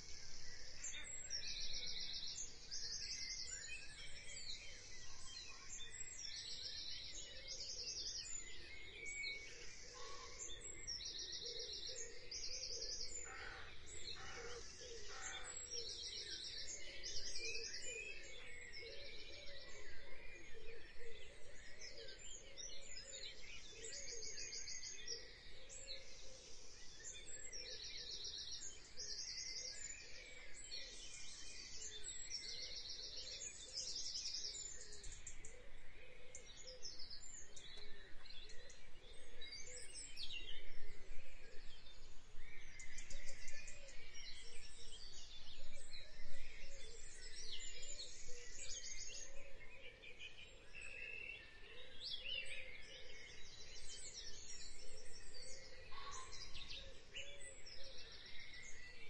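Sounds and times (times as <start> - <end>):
birds chirping with trills: 0.0 - 59.0.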